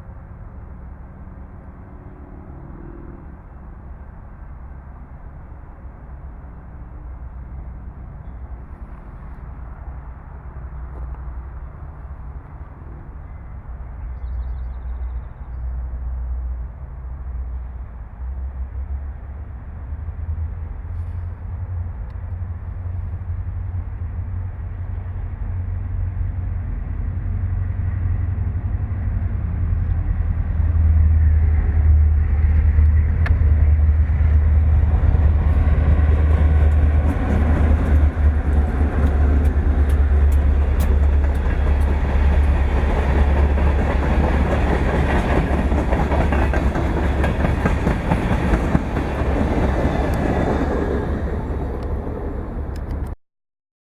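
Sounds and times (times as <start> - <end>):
freight train rumbling past: 0.0 - 53.2
wheels clicking over rail joints: 32.8 - 52.0.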